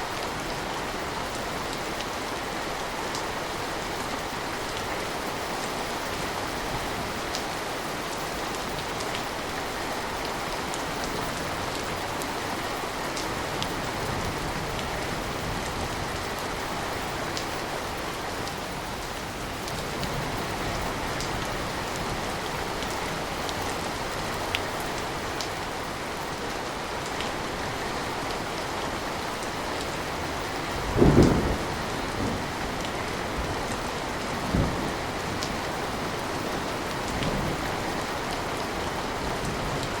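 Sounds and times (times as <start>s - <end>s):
steady rain: 0.0s - 40.0s
thunder burst: 30.9s - 32.4s.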